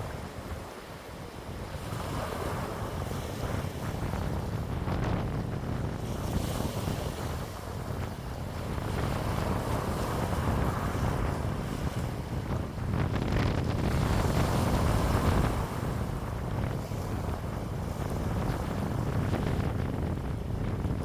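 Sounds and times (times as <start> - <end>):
wind blowing: 0.0 - 21.0
wind buffeting microphone: 0.0 - 21.0.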